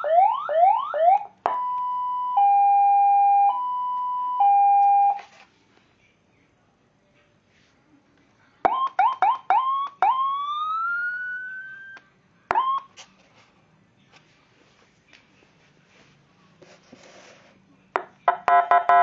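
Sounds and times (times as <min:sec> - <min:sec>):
two-tone hi-lo siren: 0:00.0 - 0:05.2, 0:08.7 - 0:12.9
siren wail rising in pitch: 0:08.7 - 0:12.8.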